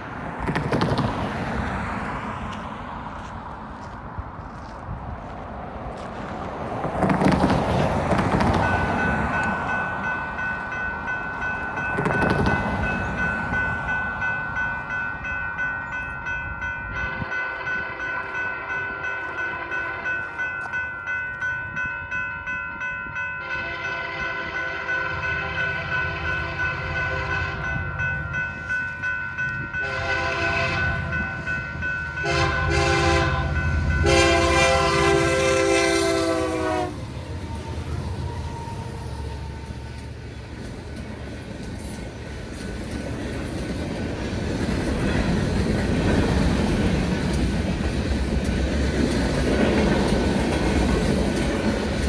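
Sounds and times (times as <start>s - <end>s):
crossing bell ringing: 8.6s - 52.0s
diesel locomotive rumble: 23.1s - 52.0s
train air horn blasts: 23.4s - 27.8s, 29.8s - 31.5s, 32.2s - 39.6s.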